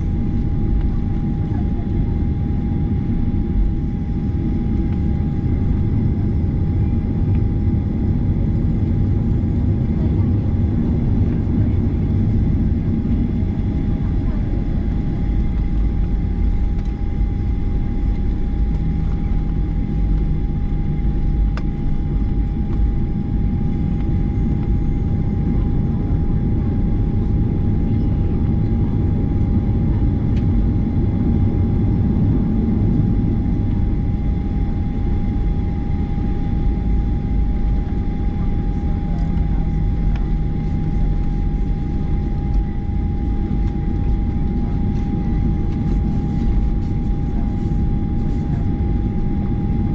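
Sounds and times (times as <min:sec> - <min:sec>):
jet engines idling: 0:00.0 - 0:49.9.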